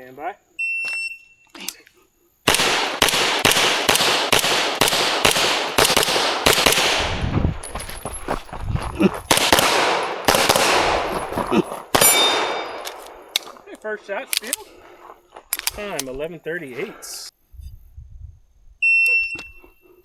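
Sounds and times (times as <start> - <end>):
rapid pistol gunshots: 2.5 - 7.3, 9.3 - 13.4.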